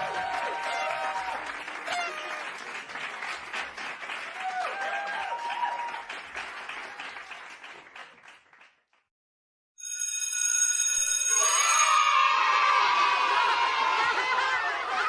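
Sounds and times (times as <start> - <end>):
children cheering and clapping: 0.0 - 8.8, 11.3 - 15.0
bright steady ringing tone: 9.8 - 12.2.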